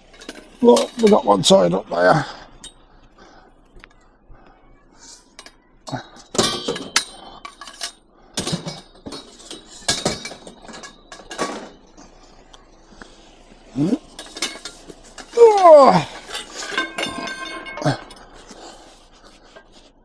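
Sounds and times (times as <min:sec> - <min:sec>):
scrap metal clanking: 0:00.0 - 0:01.4, 0:05.1 - 0:12.2, 0:13.9 - 0:19.9.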